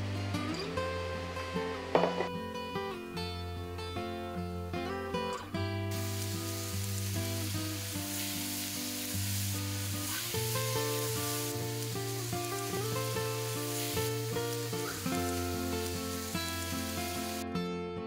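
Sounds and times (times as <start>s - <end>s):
soft acoustic guitar music: 0.0s - 18.0s
vegetables sizzling in a pan: 3.1s - 17.4s.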